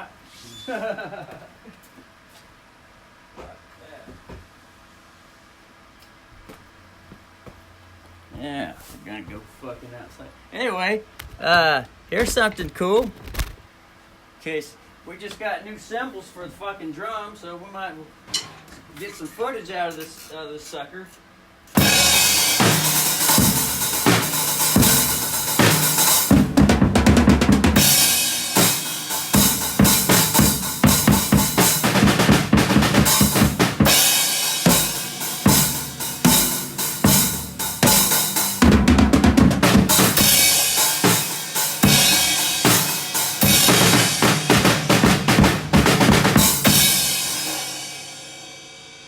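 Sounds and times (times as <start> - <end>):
cymbal crashes: 21.8 - 26.4, 27.8 - 38.7, 39.8 - 49.0
heavy low drum pounding: 21.8 - 48.4
rapid drum hits: 21.8 - 48.9.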